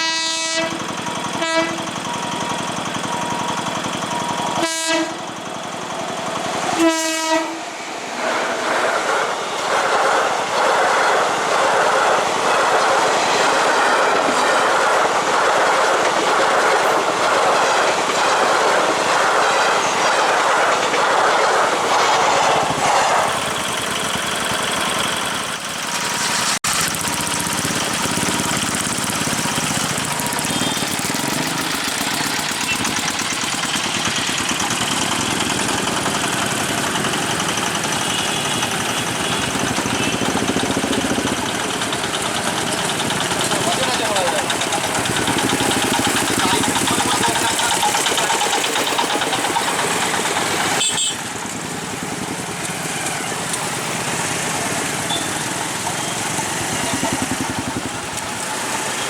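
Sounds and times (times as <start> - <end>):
train horn blasts: 0.0 - 1.9, 4.6 - 5.3, 6.7 - 7.8, 50.8 - 51.3
train rushing noise: 0.0 - 59.0
train wheels clicking over rail joints: 0.0 - 59.0.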